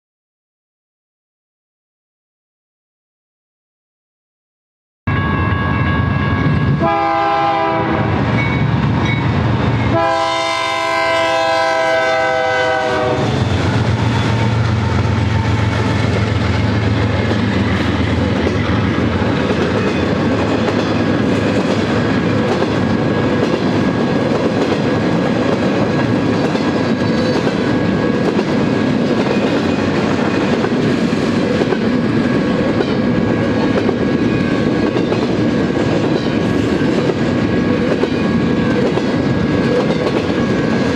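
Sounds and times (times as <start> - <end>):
crossing bell ringing: 5.1 - 7.0, 8.2 - 10.0
locomotive air horn blasts: 6.8 - 8.3, 9.9 - 13.5
freight cars clickety-clack: 13.6 - 40.9.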